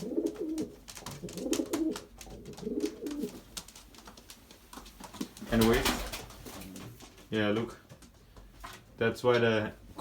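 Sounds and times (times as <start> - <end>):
pigeons cooing: 0.0 - 3.4.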